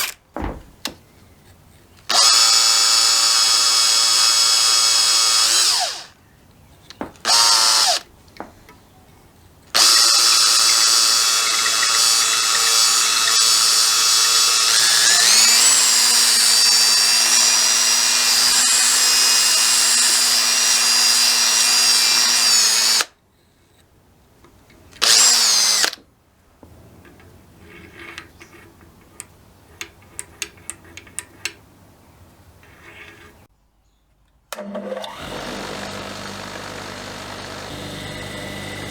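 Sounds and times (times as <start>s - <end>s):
electric drill running: 2.1s - 6.2s, 7.2s - 8.0s, 9.8s - 23.1s, 25.0s - 26.0s, 34.6s - 38.9s.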